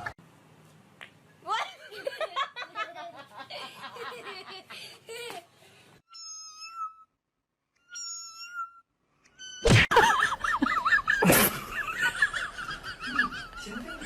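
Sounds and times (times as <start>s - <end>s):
person laughing: 9.9s - 14.0s.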